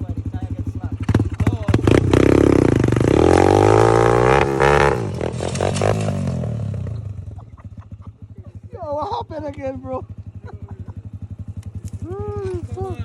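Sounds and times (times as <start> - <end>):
dirt bike engine revving: 0.9 - 8.0.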